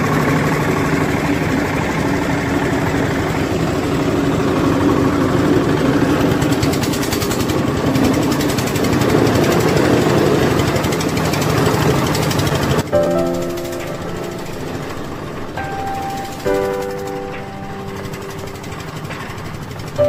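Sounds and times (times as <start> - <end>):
ice crusher grinding ice: 2.2 - 12.8.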